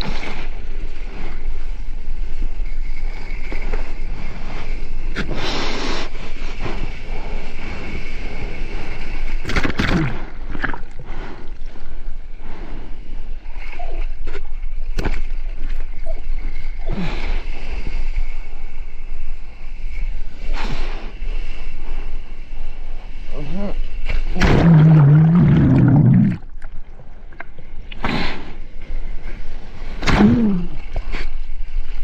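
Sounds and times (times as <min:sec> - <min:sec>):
ocean water splashing: 0:24.2 - 0:32.0
low rumble: 0:24.3 - 0:28.0.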